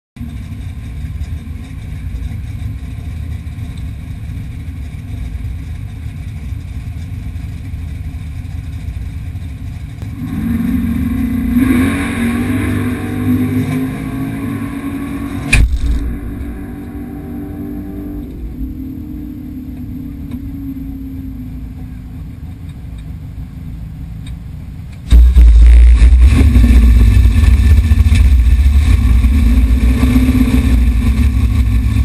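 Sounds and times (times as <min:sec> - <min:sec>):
car engine idling and revving: 0:00.2 - 0:32.0
sharp thump: 0:15.4 - 0:16.7, 0:25.1 - 0:26.3.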